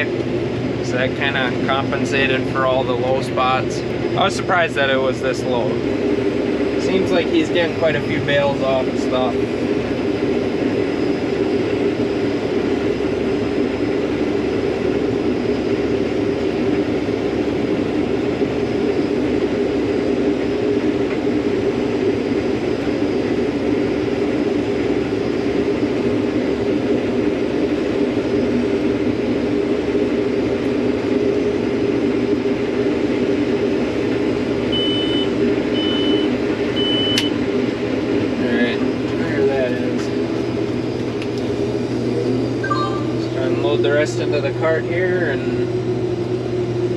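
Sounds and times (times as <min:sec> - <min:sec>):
combine harvester drone: 0:00.0 - 0:46.9
short high electronic beeps: 0:42.6 - 0:43.2.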